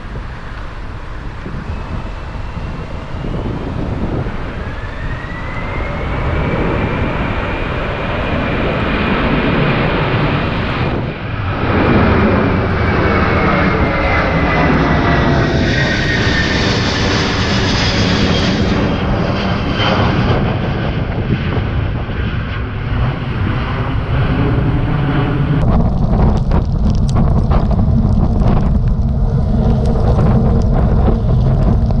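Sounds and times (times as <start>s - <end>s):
airliner engines roaring: 0.0s - 32.0s
wind buffeting microphone: 0.0s - 32.0s.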